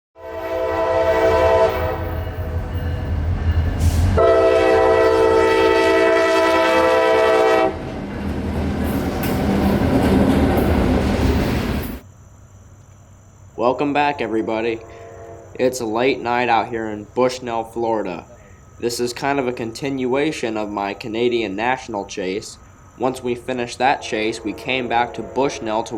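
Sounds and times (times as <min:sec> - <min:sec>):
locomotive air horn: 0:00.2 - 0:03.0, 0:03.8 - 0:07.8, 0:14.2 - 0:15.7, 0:23.8 - 0:25.9
train rolling past: 0:00.2 - 0:12.1, 0:22.6 - 0:25.9
locomotive engine rumble: 0:00.4 - 0:12.0.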